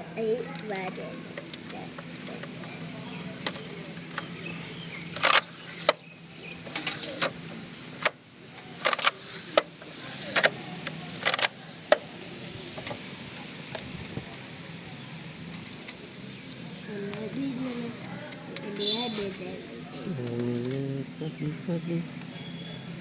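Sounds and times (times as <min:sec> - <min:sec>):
steady low hum: 0:00.0 - 0:23.0
printer parts clicking and scraping: 0:00.6 - 0:13.0.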